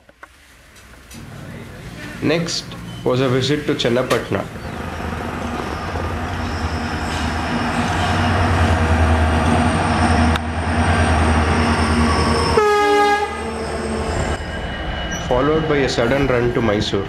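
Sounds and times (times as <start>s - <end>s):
train rumbling past: 0.3s - 17.0s
train horn blast: 12.4s - 14.1s.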